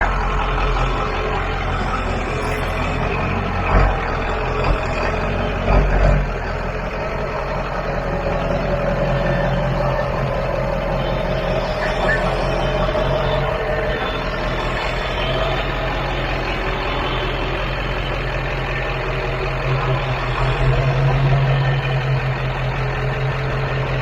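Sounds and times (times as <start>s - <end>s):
truck engine running: 0.0s - 24.0s.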